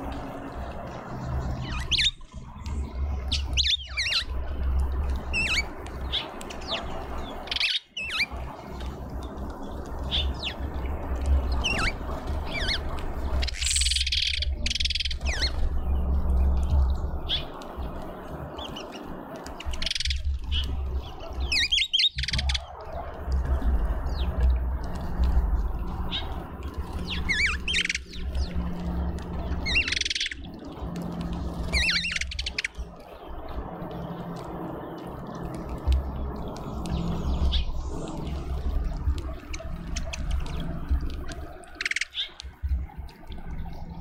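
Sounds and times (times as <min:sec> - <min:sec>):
small birds chirping: 0:00.0 - 0:44.0
steady low rumble: 0:00.0 - 0:44.0.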